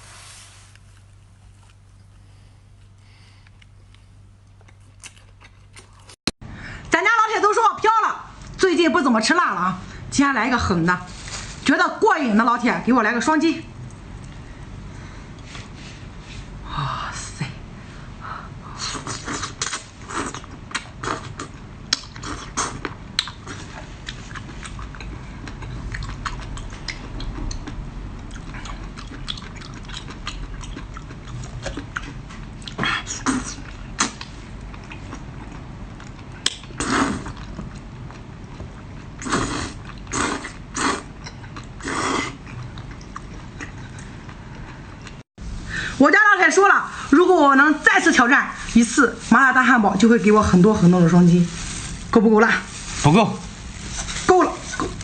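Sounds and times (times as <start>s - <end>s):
close chewing and biting: 3.4s - 6.2s, 18.9s - 45.2s.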